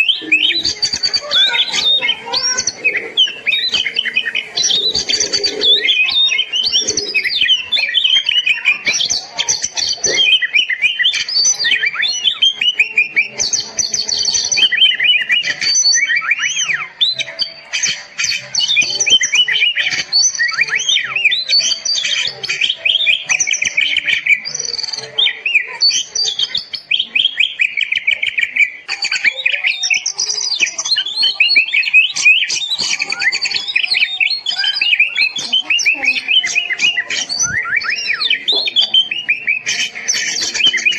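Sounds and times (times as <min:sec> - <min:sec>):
bird singing: 0:00.0 - 0:40.9.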